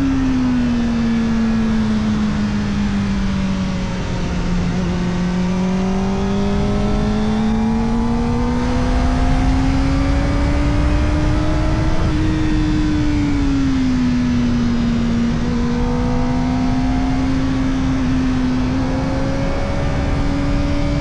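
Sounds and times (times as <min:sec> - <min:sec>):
wind rumble: 0:04.0 - 0:14.8.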